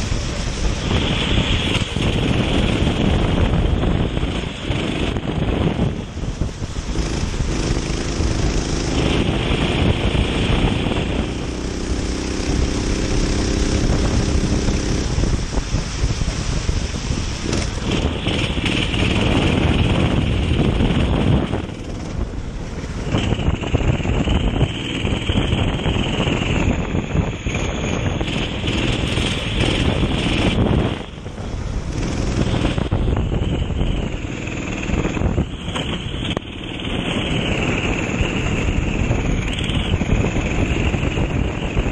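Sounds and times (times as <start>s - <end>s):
kart engine running hard: 0.0s - 15.5s, 16.9s - 41.9s
wind buffeting microphone: 0.0s - 41.9s.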